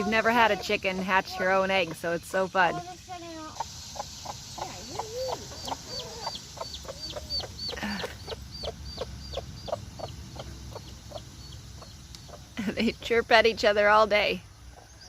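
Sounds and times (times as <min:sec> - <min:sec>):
hen clucking: 0:00.0 - 0:12.6
chick peeping: 0:02.7 - 0:12.6.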